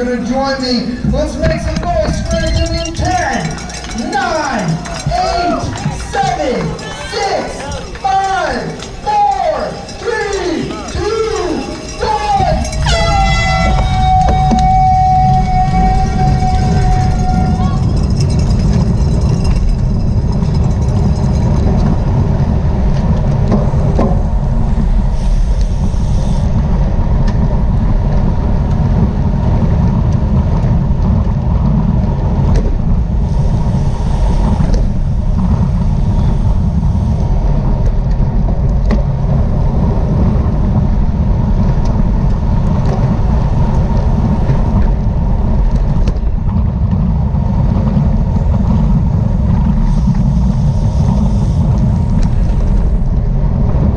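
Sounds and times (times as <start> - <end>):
wind rumble on microphone: 0.0 - 53.9.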